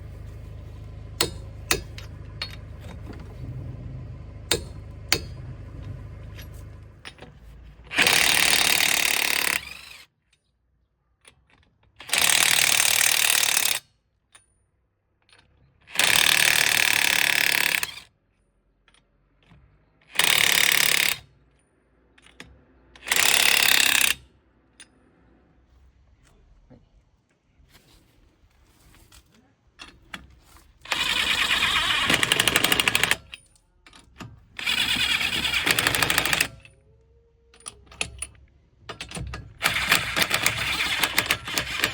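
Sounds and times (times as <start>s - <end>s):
impact wrench hammering: 1.1s - 3.6s, 4.3s - 7.3s, 7.9s - 9.8s, 30.9s - 33.3s, 34.2s - 36.7s, 37.6s - 41.9s.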